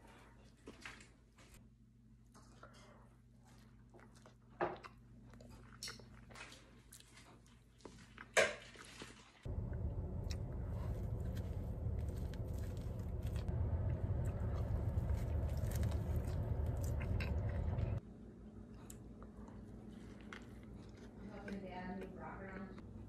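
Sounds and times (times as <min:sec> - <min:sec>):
car interior rumble: 0:09.5 - 0:18.0
person biting and chewing: 0:10.2 - 0:18.0.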